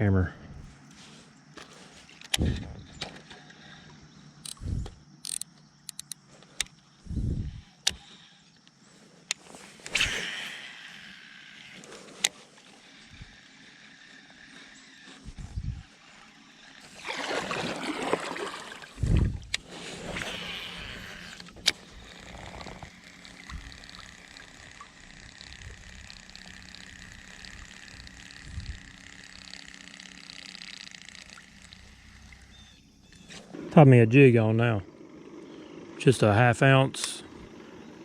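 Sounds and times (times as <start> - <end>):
sharp clicks: 4.4 - 6.8, 7.8 - 10.7, 19.4 - 32.0
water splashing around kayak: 15.9 - 27.4.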